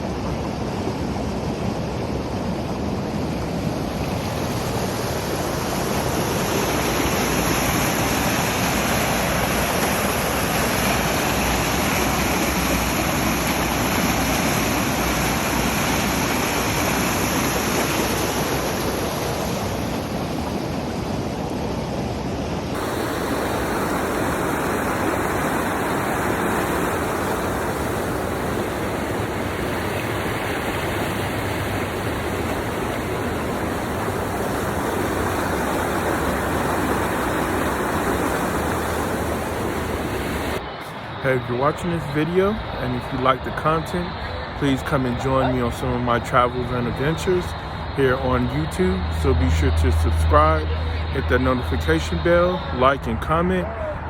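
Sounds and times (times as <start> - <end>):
river water over rapids: 0.0 - 54.0.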